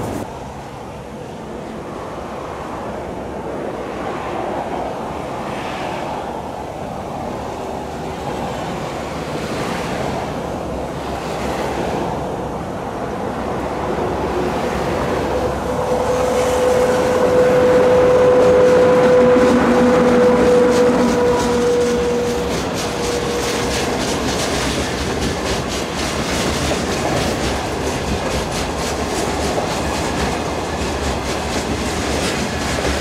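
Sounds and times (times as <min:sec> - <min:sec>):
train wheels rumbling on rails: 0:00.0 - 0:00.7, 0:03.5 - 0:33.0
locomotive whine: 0:12.6 - 0:33.0.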